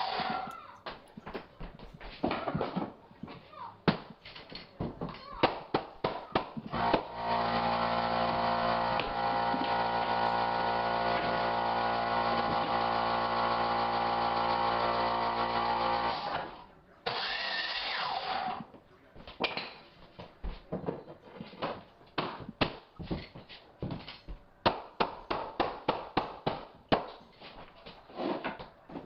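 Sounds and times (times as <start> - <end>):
motor humming: 6.7 - 16.4.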